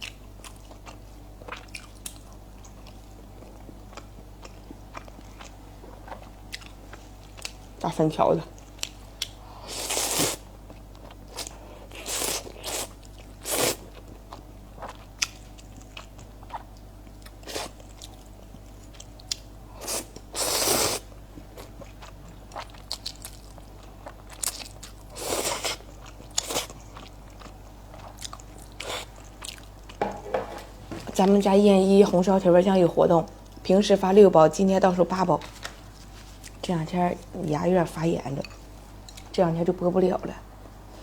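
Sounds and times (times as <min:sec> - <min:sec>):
person chewing food: 0:00.0 - 0:07.7, 0:08.6 - 0:30.8.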